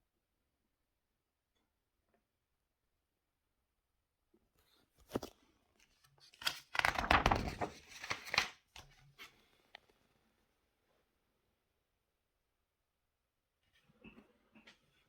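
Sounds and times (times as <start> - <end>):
paper pages rustling: 4.6 - 9.8.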